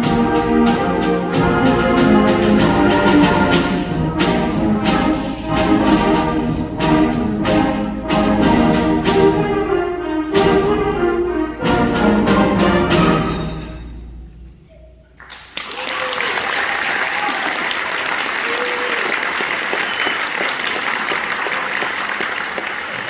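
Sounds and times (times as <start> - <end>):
concert band playing: 0.0 - 14.6
brass chords: 0.0 - 15.2
percussion strikes: 0.0 - 15.7.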